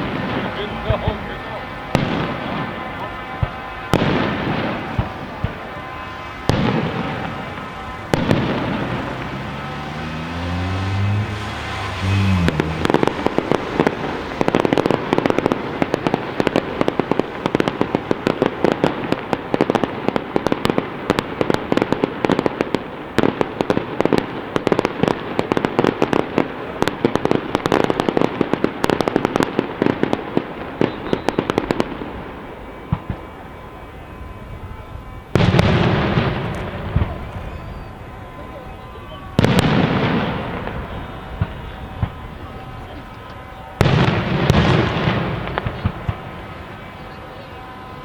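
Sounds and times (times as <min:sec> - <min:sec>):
fireworks cracking and popping: 0:00.0 - 0:33.4, 0:35.0 - 0:47.9.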